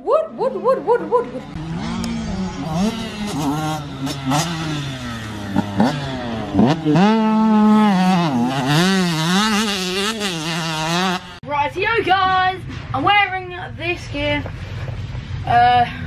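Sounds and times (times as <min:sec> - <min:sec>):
motocross bike engines revving: 0:00.5 - 0:11.6.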